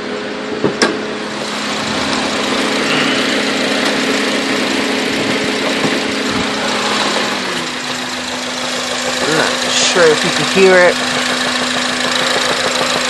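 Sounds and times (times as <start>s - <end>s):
car engine idling: 0.0s - 13.0s
faint engine knocking: 5.0s - 13.0s.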